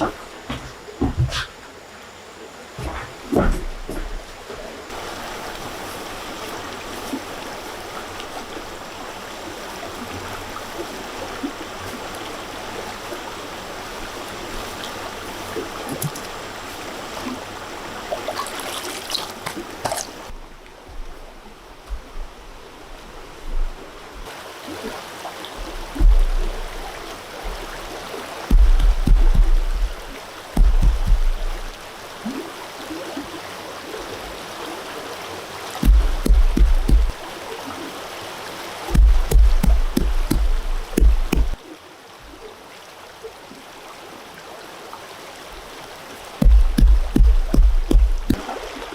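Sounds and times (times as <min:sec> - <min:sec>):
running water: 0:00.0 - 0:48.9
low thumps: 0:25.6 - 0:27.8, 0:28.5 - 0:31.9, 0:35.8 - 0:37.2, 0:38.9 - 0:41.6, 0:46.4 - 0:48.4.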